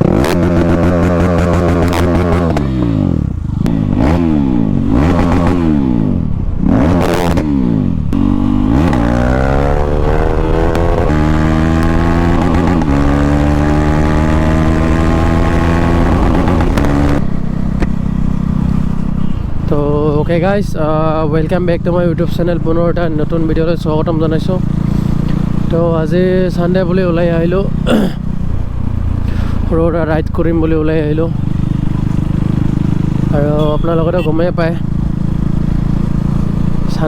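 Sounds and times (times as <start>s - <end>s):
motorcycle engine revving: 0.0s - 37.0s
exhaust pops: 16.0s - 18.1s.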